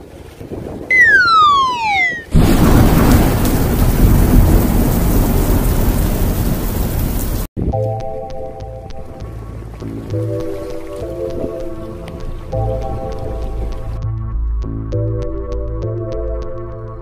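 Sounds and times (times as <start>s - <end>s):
whistle gliding down: 0.9s - 2.4s
heavy rain rushing: 0.9s - 7.5s
low thunder rumble: 2.3s - 7.5s.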